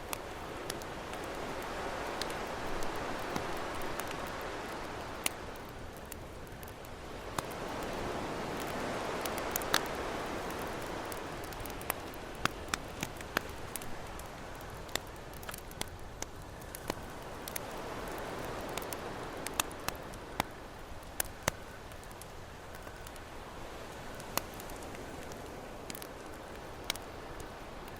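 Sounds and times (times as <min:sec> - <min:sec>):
ocean waves washing: 0:00.0 - 0:15.9
campfire crackling: 0:00.0 - 0:27.9.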